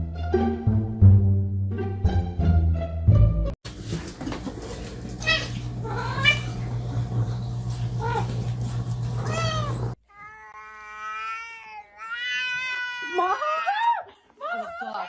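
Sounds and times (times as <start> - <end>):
cat meowing: 5.2 - 6.6, 9.2 - 13.2.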